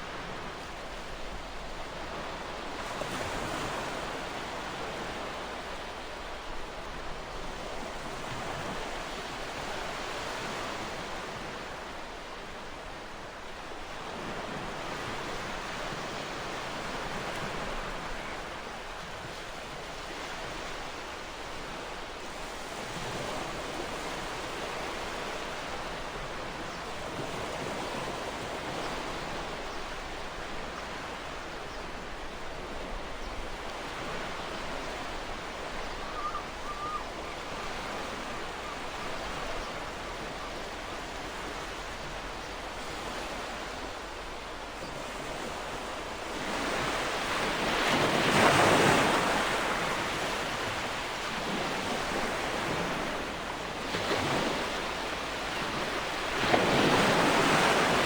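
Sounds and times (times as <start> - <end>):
waves washing on shore: 33.6 - 58.0.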